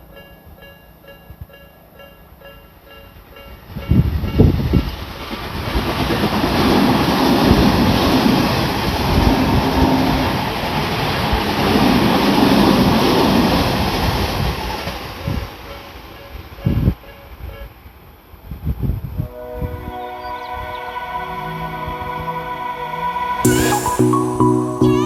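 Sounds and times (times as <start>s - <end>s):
wheels rumbling on rail: 0.0s - 19.3s.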